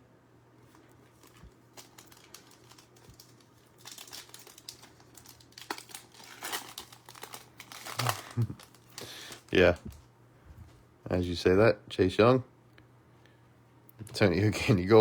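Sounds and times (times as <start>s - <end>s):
foil wrappers crinkling and tearing: 0.6s - 10.0s.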